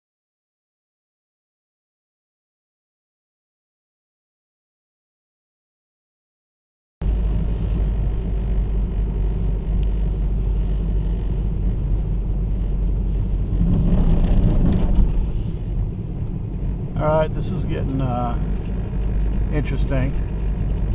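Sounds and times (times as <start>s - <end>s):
car interior engine and road noise: 7.0s - 20.9s.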